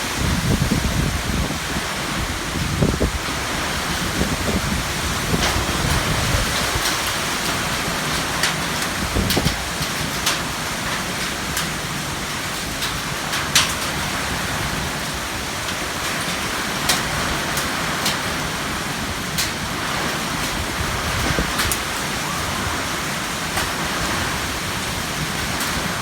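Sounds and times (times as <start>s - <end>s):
heavy rain falling: 0.0s - 26.0s
raindrop impacts ticking: 5.3s - 14.0s.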